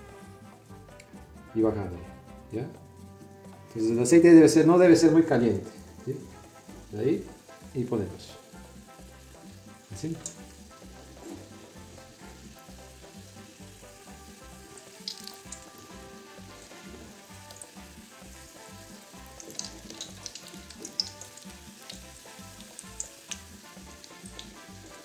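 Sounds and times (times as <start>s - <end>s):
dough frying in oil: 5.6s - 25.0s
oil crackling and popping: 5.9s - 25.0s.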